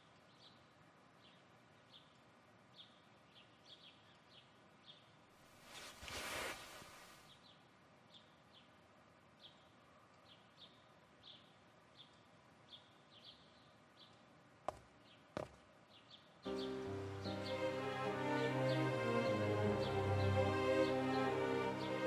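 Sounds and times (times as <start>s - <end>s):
faint small bird chirps: 0.0s - 14.3s.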